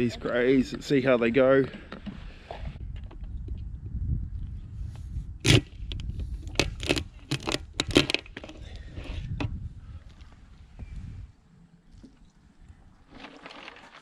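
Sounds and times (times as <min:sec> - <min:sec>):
steady low rumble: 0:02.7 - 0:06.6
sharp crunching and scraping: 0:04.5 - 0:11.2, 0:11.9 - 0:14.0.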